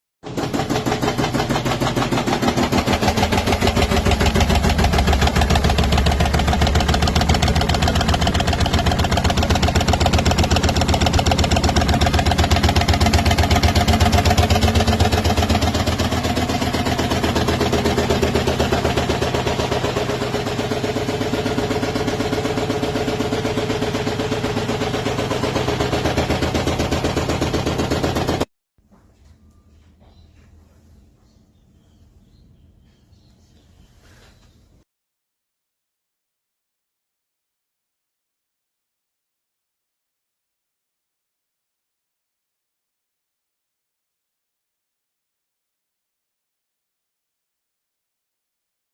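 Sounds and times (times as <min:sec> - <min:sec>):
motor hum: 0:00.3 - 0:28.5.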